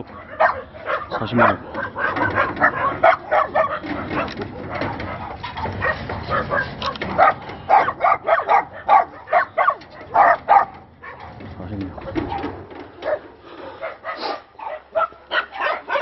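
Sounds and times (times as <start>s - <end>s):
dogs barking: 0.0s - 16.0s.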